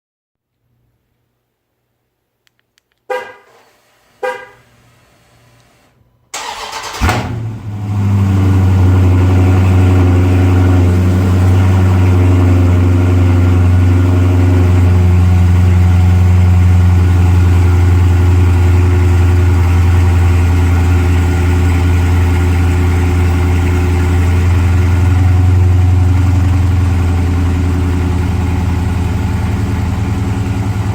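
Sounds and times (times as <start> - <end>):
engine cranking and starting: 6.3 - 7.8
engine idling loudly: 8.4 - 30.9.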